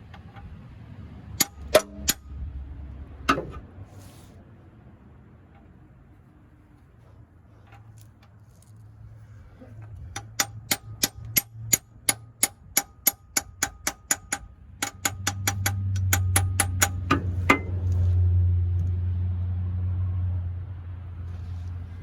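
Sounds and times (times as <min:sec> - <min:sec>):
hammer tapping on metal: 0:01.4 - 0:02.3, 0:10.1 - 0:17.8.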